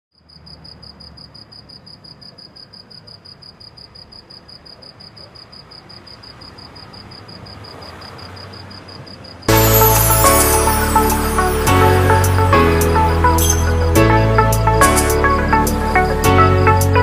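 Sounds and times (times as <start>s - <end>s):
cricket chirping: 0.1s - 11.6s.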